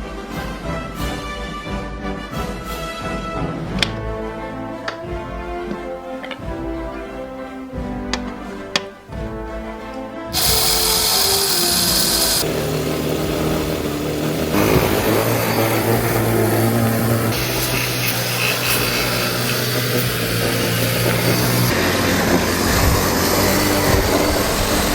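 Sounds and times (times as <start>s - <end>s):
background music: 0.0s - 24.9s
loud mechanical noise: 10.3s - 24.9s.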